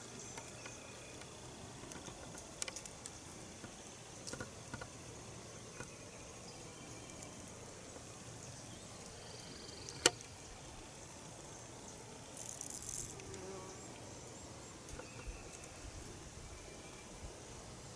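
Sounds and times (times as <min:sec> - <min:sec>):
faint insects: 0:00.0 - 0:17.9.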